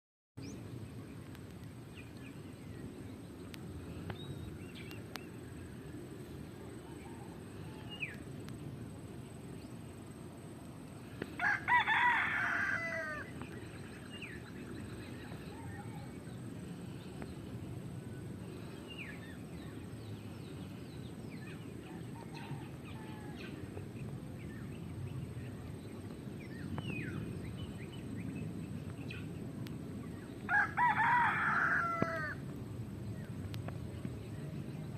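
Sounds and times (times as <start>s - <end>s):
rooster crowing: 11.4s - 13.4s, 30.5s - 32.4s
faint bird chirps: 13.2s - 29.4s.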